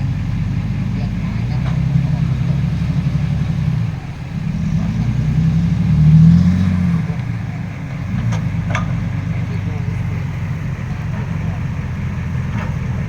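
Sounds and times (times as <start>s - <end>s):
heavy diesel truck engine: 0.0s - 13.0s.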